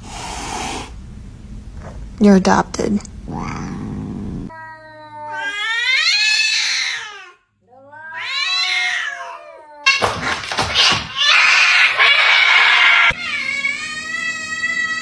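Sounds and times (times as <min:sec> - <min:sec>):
cat yowling: 0:04.5 - 0:10.1, 0:10.7 - 0:15.0.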